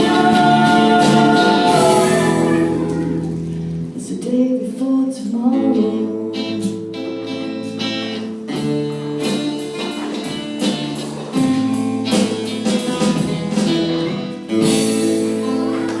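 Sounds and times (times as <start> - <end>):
guitar chords strummed: 0.0 - 4.0, 5.6 - 16.0
live band playing: 0.0 - 4.3, 5.6 - 16.0.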